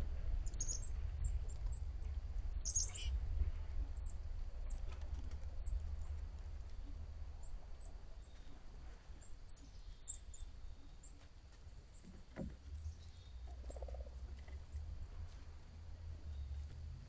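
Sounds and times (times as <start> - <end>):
low rumble: 0.0 - 8.6
small birds chirping: 0.4 - 3.2, 4.0 - 11.3, 11.9 - 14.8, 16.1 - 16.8.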